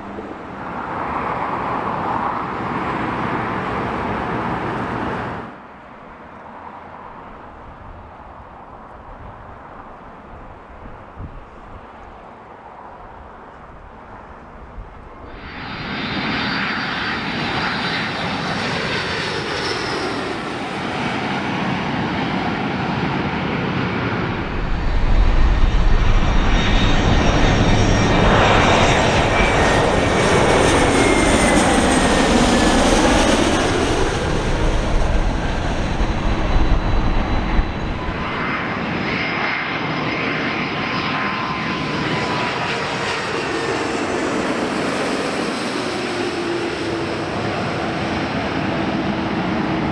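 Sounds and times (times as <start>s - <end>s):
jet airliner passing: 0.0s - 49.9s
whining jet engine tones: 13.4s - 49.9s.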